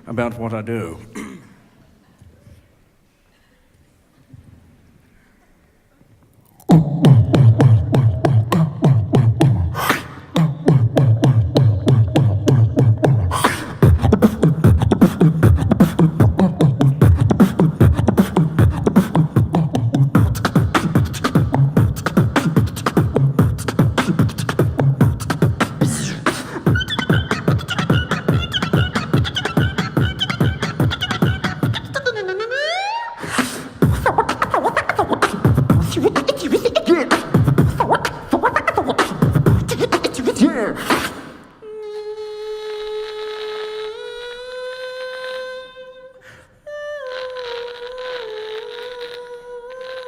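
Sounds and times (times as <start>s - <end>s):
person beatboxing: 6.4s - 41.6s, 47.1s - 50.0s.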